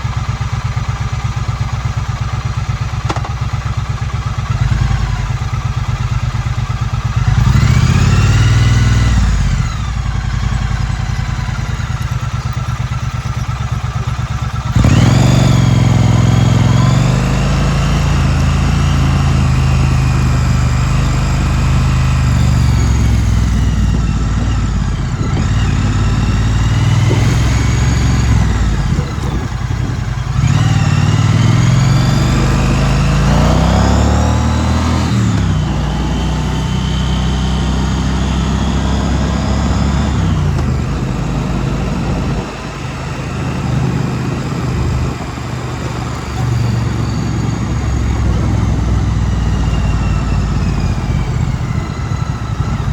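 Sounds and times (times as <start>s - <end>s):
motorcycle engine accelerating: 0.0s - 52.9s
wind noise: 22.3s - 37.0s, 38.4s - 52.9s.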